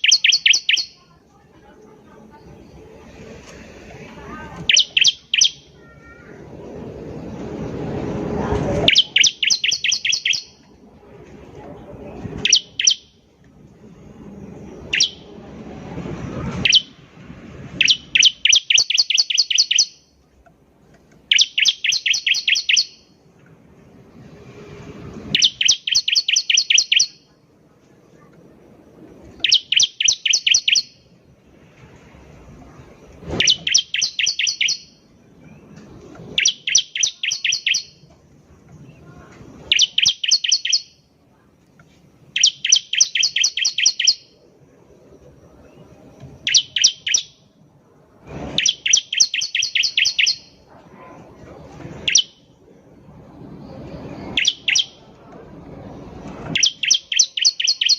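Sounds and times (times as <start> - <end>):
bird singing rapid high notes: 0.0 - 1.2, 4.6 - 5.9, 8.8 - 10.7, 12.4 - 13.3, 14.8 - 15.4, 16.6 - 17.0, 17.8 - 20.2, 21.3 - 23.2, 25.3 - 27.3, 29.3 - 31.1, 33.4 - 35.1, 36.3 - 38.1, 39.6 - 41.1, 42.3 - 44.4, 45.7 - 47.6, 48.6 - 50.6, 52.0 - 52.6, 53.8 - 55.1, 56.5 - 57.9.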